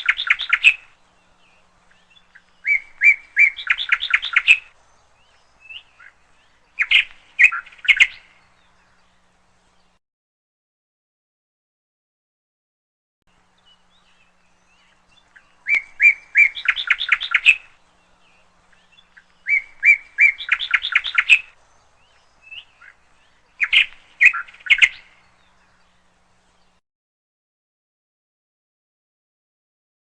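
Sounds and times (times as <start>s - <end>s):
canary chirping: 2.0s - 4.7s, 15.6s - 17.8s, 18.8s - 21.6s, 23.6s - 25.1s.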